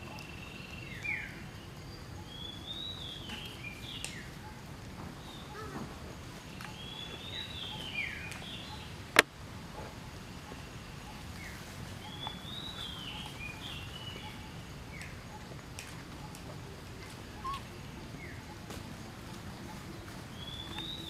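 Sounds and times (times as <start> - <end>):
low background hiss: 0.0 - 21.0
bird singing warbling phrases: 16.2 - 18.6, 19.2 - 21.0.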